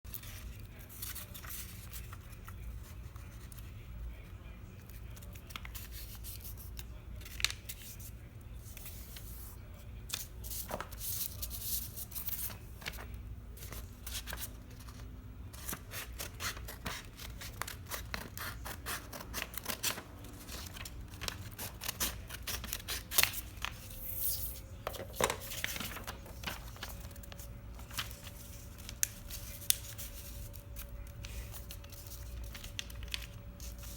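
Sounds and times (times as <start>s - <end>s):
paper being folded and creased: 4.8s - 9.5s, 15.6s - 33.9s.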